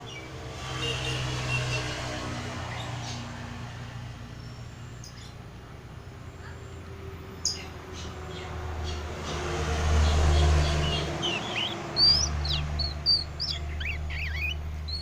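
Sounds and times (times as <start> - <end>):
young bird twittering chirps: 10.0 - 15.0.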